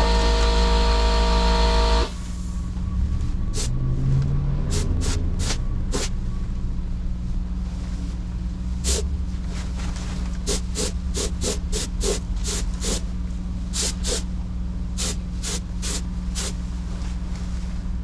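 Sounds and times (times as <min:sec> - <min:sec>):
steady low hum: 0:00.0 - 0:18.0
paint spray gun hissing: 0:04.7 - 0:06.1, 0:10.5 - 0:13.1, 0:13.8 - 0:14.3, 0:15.0 - 0:16.6.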